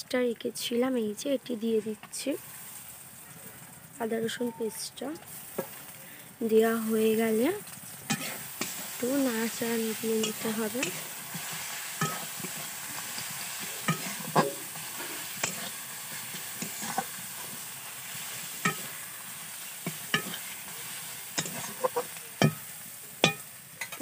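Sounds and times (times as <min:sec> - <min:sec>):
onions sizzling in oil: 0:00.1 - 0:24.0
metal spatula scraping a pan: 0:08.0 - 0:24.0.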